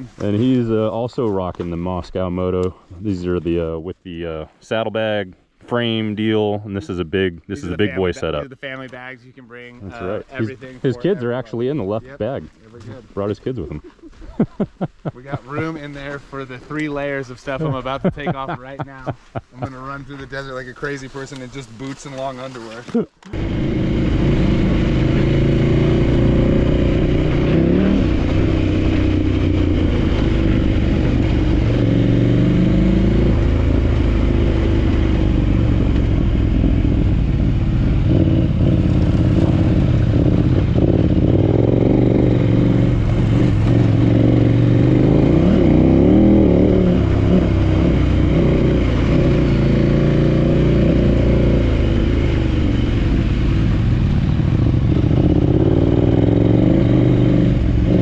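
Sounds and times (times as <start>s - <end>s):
motorcycle engine running: 23.3s - 58.0s.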